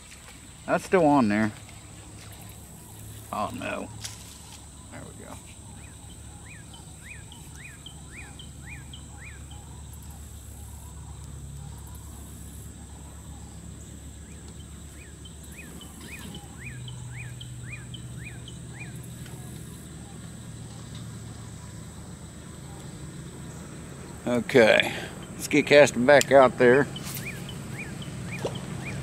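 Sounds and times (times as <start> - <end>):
high insect drone: 0.0 - 29.0
bird calling short notes: 26.7 - 29.0.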